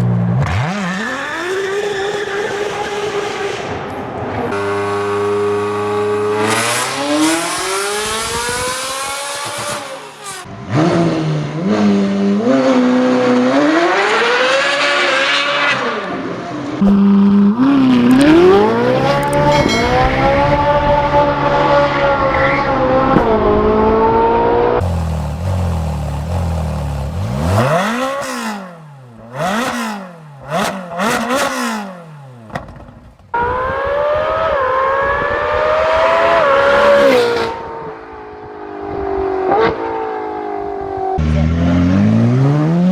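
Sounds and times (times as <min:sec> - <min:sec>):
sports car engines accelerating: 0:00.0 - 0:42.9
sharp engine revs: 0:04.6 - 0:16.2, 0:16.8 - 0:32.5.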